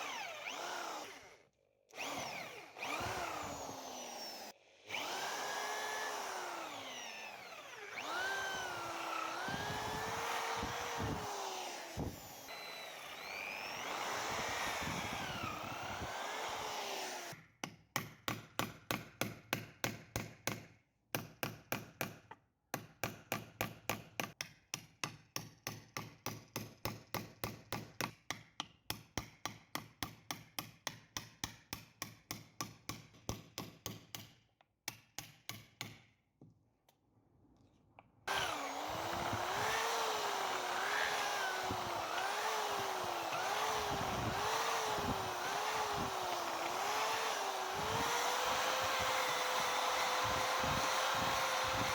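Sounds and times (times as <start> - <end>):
power tool motor running: 0.0 - 17.4, 38.3 - 51.9.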